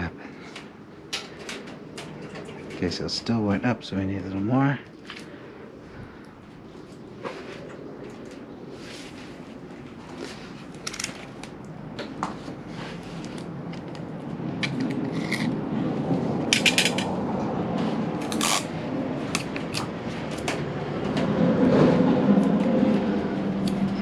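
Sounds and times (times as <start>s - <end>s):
wheel weights and tape handled: 16.5s - 17.2s, 18.2s - 20.6s.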